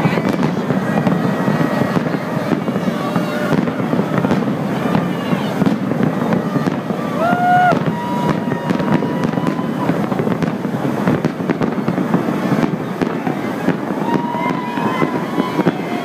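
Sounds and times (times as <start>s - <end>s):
fireworks crackling and banging: 0.0s - 16.0s
fireworks rumble: 0.0s - 16.0s
whistling firework tone: 0.0s - 16.0s.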